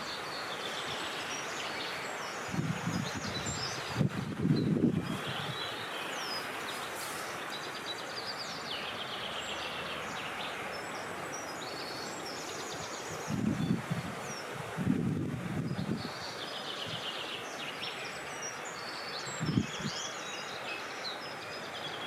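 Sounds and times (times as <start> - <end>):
small birds chirping: 0.0 - 14.6, 15.2 - 22.0
low wind gusts: 0.0 - 22.0
wind blowing: 2.0 - 7.6, 12.6 - 17.2, 19.3 - 20.0.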